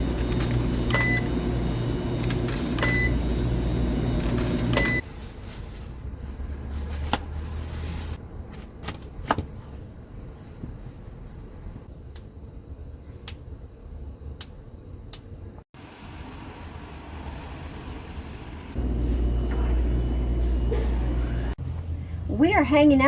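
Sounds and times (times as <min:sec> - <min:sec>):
machine humming: 0:00.0 - 0:05.0, 0:18.4 - 0:21.6.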